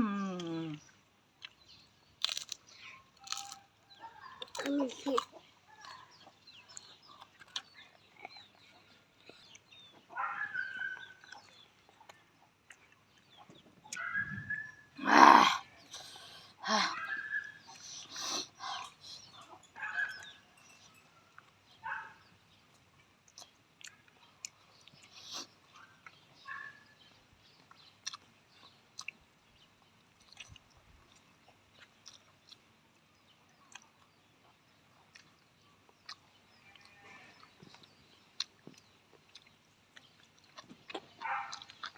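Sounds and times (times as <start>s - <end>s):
person chewing food: 0.7s - 14.0s, 22.5s - 41.9s.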